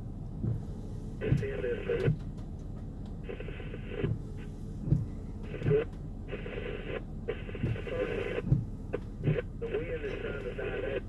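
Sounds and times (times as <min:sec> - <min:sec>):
narrowband radio audio with hiss: 0:01.2 - 0:02.1, 0:03.2 - 0:04.5, 0:05.4 - 0:11.0.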